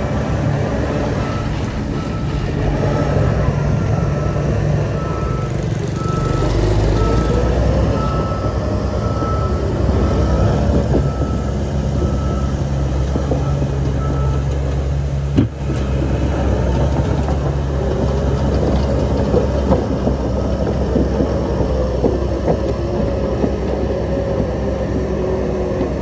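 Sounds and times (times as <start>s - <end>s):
diesel engine running: 0.0s - 26.0s
reversing alarm beeping: 0.1s - 14.5s.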